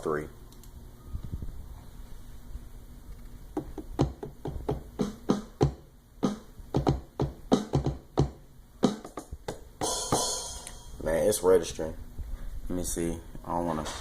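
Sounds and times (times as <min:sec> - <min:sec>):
electronic drum sample hits: 0:03.6 - 0:11.0.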